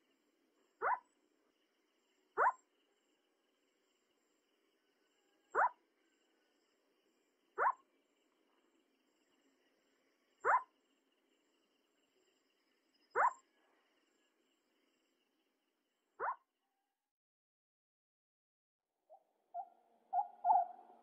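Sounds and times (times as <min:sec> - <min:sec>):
faint insect trill: 0:00.0 - 0:16.3
owl calling: 0:00.8 - 0:01.0, 0:05.6 - 0:05.8, 0:07.6 - 0:07.8, 0:10.4 - 0:10.7, 0:13.2 - 0:13.4, 0:19.1 - 0:21.0.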